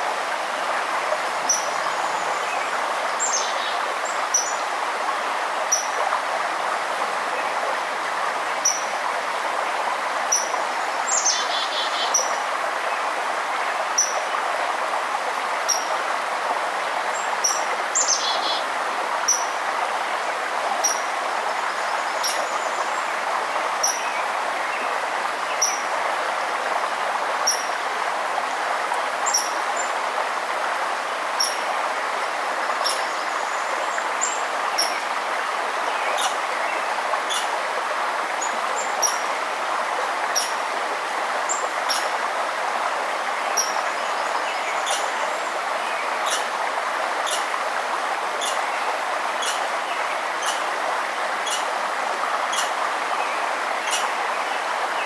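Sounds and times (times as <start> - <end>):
flowing river water: 0.0 - 55.0.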